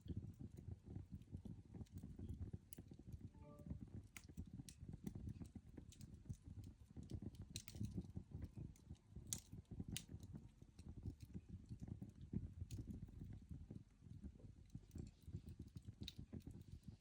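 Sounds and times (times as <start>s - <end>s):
coal fire crackling: 7.0s - 11.8s.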